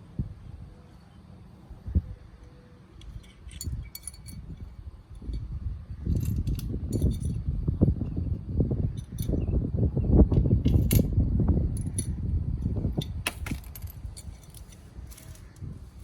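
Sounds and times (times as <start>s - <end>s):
metal tools clinking: 3.0s - 5.5s, 6.1s - 7.4s, 11.8s - 16.0s.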